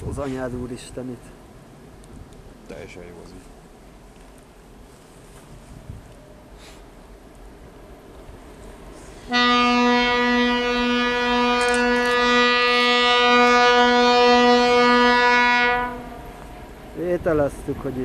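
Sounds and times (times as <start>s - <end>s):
train horn blast: 9.2s - 16.4s.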